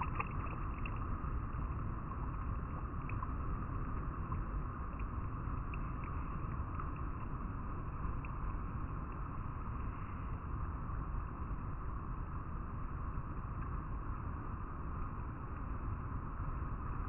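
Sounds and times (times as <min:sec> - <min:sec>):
river flowing over rocks: 0:00.0 - 0:01.2.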